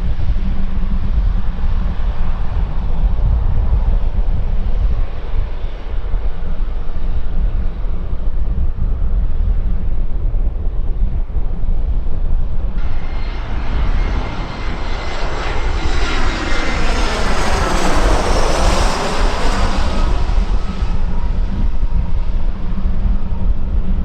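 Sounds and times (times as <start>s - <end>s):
wind rumbling on microphone: 0.0s - 24.0s
jet airliner passing: 0.1s - 24.0s
thin steady whine: 12.4s - 24.0s.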